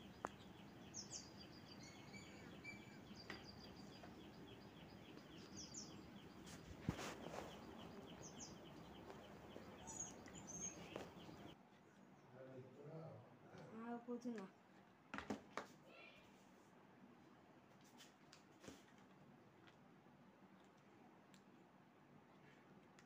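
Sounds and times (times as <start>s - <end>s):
faint bird chirping: 0.0s - 13.2s.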